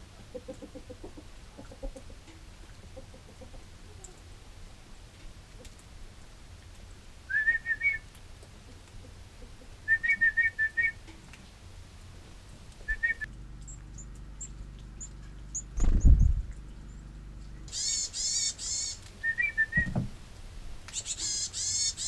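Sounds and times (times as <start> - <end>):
faint high bird chirps: 12.9 - 20.0, 20.9 - 22.0
loud low thump: 15.8 - 16.6, 19.8 - 20.2.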